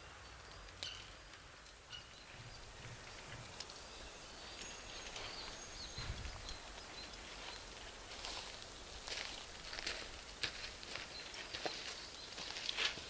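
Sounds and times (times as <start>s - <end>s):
campfire hissing and crackling: 0.0s - 13.0s
faint bird chirps: 1.8s - 8.5s, 10.9s - 12.7s.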